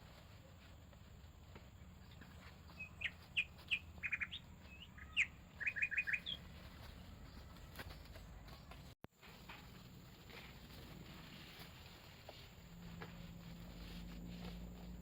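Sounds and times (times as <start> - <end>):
songbird chirps and trills: 1.4 - 9.0.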